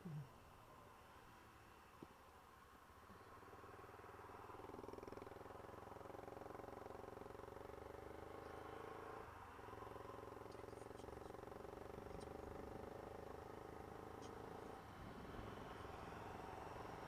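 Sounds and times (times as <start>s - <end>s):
motorcycle engine running: 3.6s - 17.0s.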